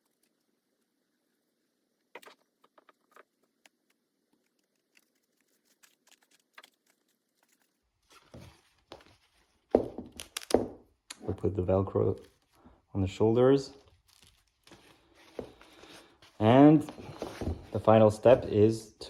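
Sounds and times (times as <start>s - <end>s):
fabric rustling: 13.9s - 18.6s.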